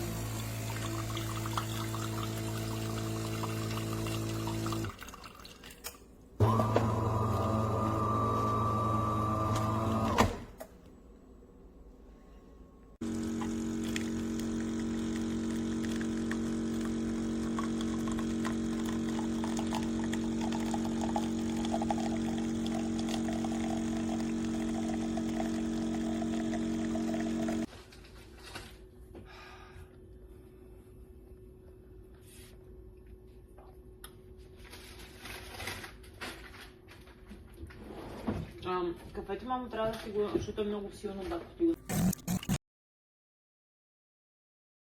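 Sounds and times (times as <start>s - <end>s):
espresso machine pump humming: 0.0s - 5.0s, 6.4s - 10.3s, 13.0s - 27.7s.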